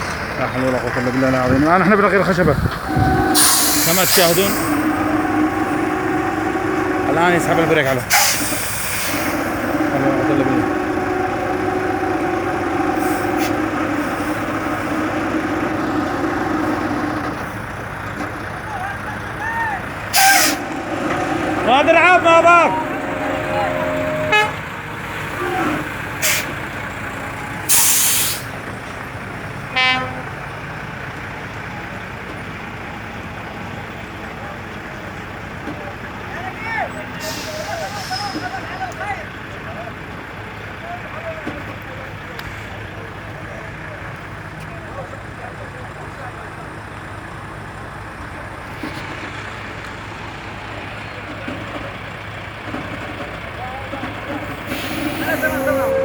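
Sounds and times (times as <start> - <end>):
heavy vehicle engines running: 0.0 - 56.0
short horn toot: 2.8 - 8.5, 20.1 - 26.5, 54.6 - 56.0
air brake hiss: 3.1 - 4.9, 8.1 - 9.5, 20.1 - 20.6, 26.2 - 26.6, 27.7 - 28.5, 37.2 - 38.5, 54.6 - 56.0.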